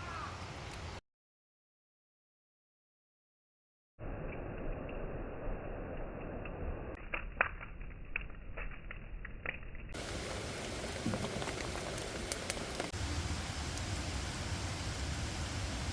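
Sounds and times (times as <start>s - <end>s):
wood fire crackling: 4.1s - 15.9s
fire pops and snaps: 6.2s - 13.0s
steady hiss: 10.0s - 15.9s.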